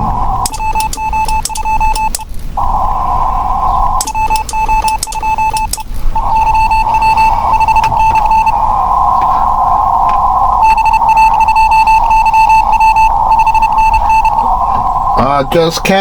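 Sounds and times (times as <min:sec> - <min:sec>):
morse code beeps: 0:00.0 - 0:09.6, 0:10.6 - 0:14.8
radio band hiss: 0:00.0 - 0:16.0
key clicks: 0:00.4 - 0:02.3, 0:04.0 - 0:08.5.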